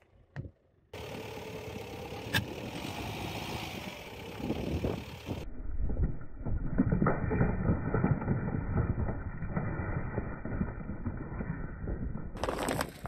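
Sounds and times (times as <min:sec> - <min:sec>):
car engine idling: 0:01.0 - 0:05.4.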